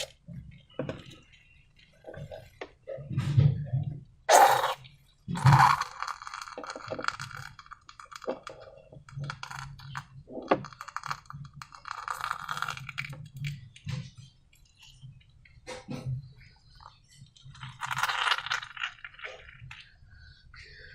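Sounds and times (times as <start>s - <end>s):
slime squelch: 4.3s - 20.9s.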